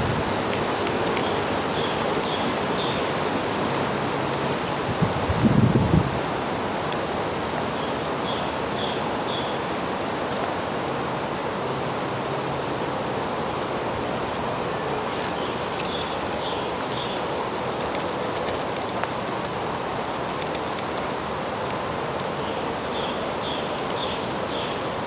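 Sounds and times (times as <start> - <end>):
steady rushing background noise: 0.0 - 25.0
high thin birdsong: 1.2 - 3.5, 7.8 - 9.9, 15.4 - 17.8, 22.4 - 25.0.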